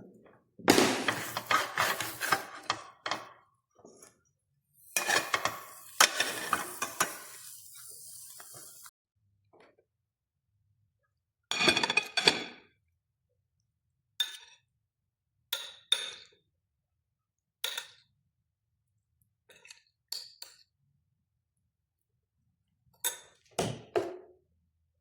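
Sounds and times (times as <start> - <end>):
utensils clinking against dishes: 0.7 - 3.4, 4.9 - 8.9.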